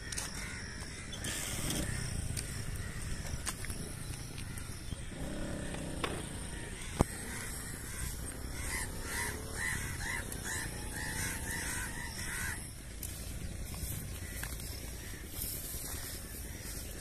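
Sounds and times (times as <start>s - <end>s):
bird giving harsh calls: 4.5s - 12.9s.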